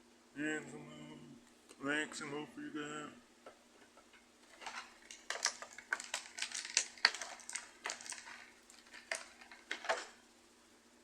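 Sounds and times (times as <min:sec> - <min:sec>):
plastic clicks and rattles: 0:04.5 - 0:10.2.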